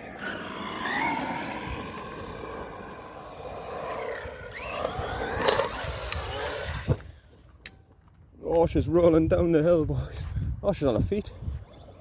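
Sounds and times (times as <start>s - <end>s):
electric motor whine: 0.0s - 7.5s
tyre and drivetrain noise: 0.0s - 8.3s.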